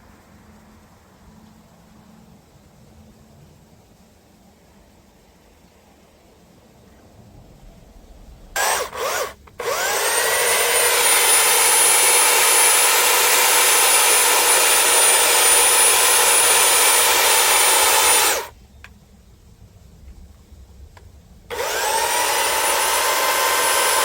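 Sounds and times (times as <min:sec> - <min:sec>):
electric power tool whining: 0:08.6 - 0:18.5, 0:21.5 - 0:24.0.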